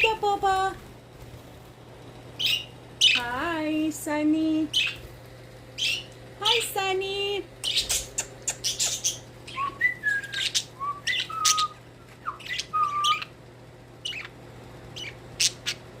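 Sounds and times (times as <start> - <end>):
budgerigars chirping: 2.4 - 3.2, 4.7 - 5.0, 5.8 - 6.1, 7.7 - 13.3, 14.0 - 14.3, 15.0 - 15.8
budgerigars whistling: 5.8 - 6.1, 7.7 - 13.3, 14.0 - 14.3, 15.0 - 15.8.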